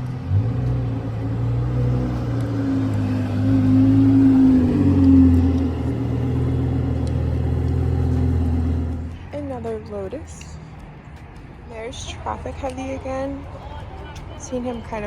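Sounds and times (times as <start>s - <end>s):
car engine running: 0.0s - 10.2s.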